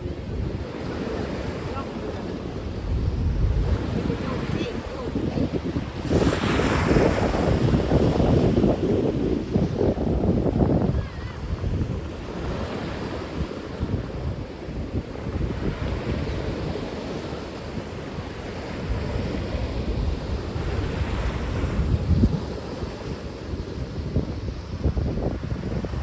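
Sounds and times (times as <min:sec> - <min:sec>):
sea waves breaking: 0:00.0 - 0:26.0
wind buffeting microphone: 0:00.0 - 0:26.0.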